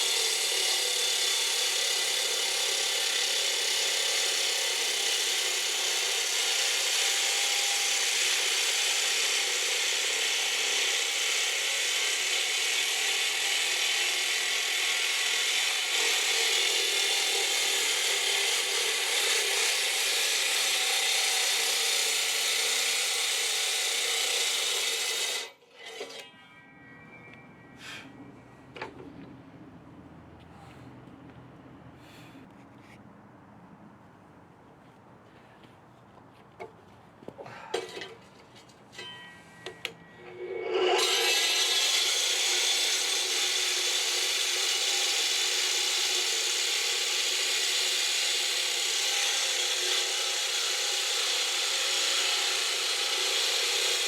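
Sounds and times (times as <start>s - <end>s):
power tool cutting: 0.0s - 26.3s, 39.8s - 54.0s.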